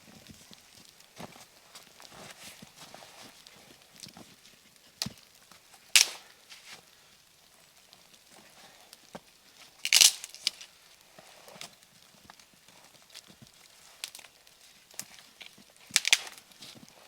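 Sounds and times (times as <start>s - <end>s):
sharp crunches and snaps: 0.2s - 17.0s.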